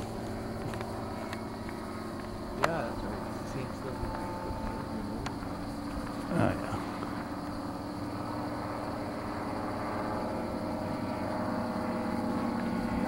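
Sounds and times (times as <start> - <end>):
light airplane engine droning: 0.0 - 13.0.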